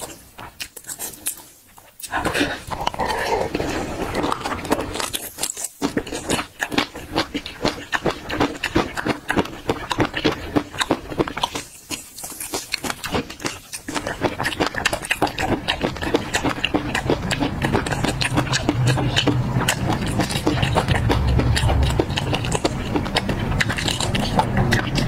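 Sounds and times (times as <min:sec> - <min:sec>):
chewing peanuts: 0:00.0 - 0:25.0
mouth clicks: 0:12.6 - 0:25.0.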